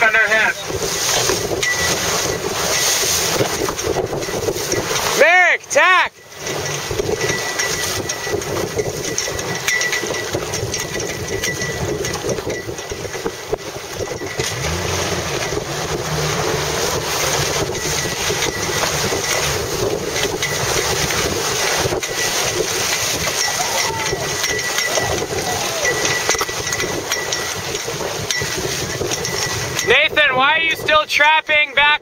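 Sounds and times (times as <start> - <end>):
wind on microphone: 0.0 - 5.2, 6.2 - 31.1.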